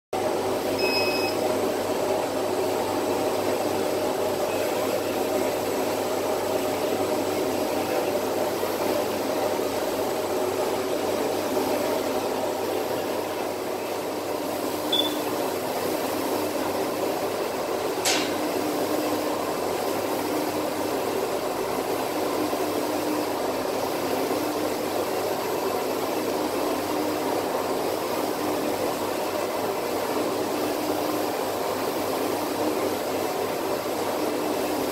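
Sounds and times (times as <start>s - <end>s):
faint low hum of print carriage: 0.2s - 34.9s
short high beep: 0.8s - 1.4s, 14.9s - 15.2s
printer fan-like rush: 1.4s - 34.9s
sharp click: 18.0s - 18.4s.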